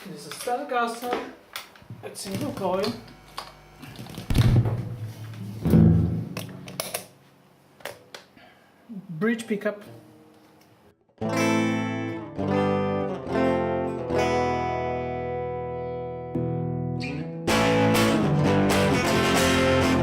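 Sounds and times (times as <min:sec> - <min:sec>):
distorted electric guitar chords: 0:02.6 - 0:07.0, 0:11.2 - 0:20.0
distorted electric guitar strumming: 0:02.6 - 0:07.0, 0:11.2 - 0:20.0.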